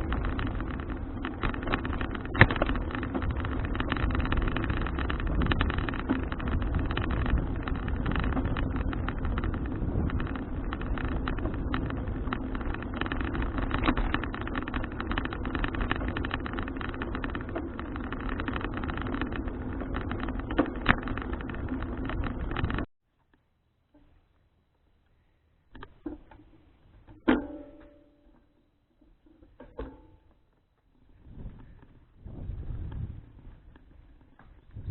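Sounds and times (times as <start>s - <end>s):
bicycle rattles: 0.0s - 22.9s, 25.7s - 34.9s
tyre and road rumble: 0.0s - 22.9s, 25.7s - 34.9s
wind buffeting microphone: 0.0s - 22.9s, 31.1s - 34.9s.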